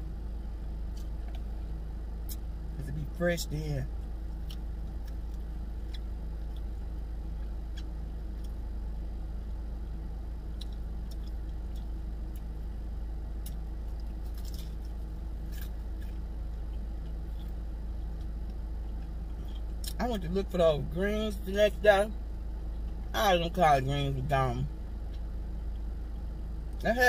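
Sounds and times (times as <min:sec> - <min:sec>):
air conditioning hum: 0:00.0 - 0:27.0
car engine idling: 0:00.0 - 0:27.0
chewing fried chicken crunches: 0:04.1 - 0:08.7, 0:10.4 - 0:12.7, 0:13.3 - 0:20.0.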